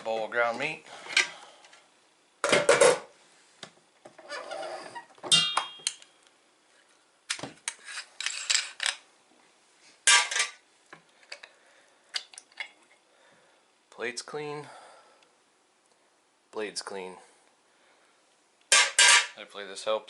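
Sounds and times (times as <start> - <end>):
metal scrape: 4.2 - 5.1
metal parts clinking: 7.8 - 9.0.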